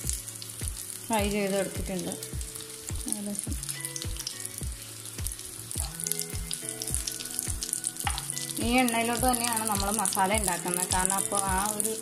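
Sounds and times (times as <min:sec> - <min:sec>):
background music with steady beat: 0:00.0 - 0:12.0
chicken sizzling in hot oil: 0:00.0 - 0:12.0.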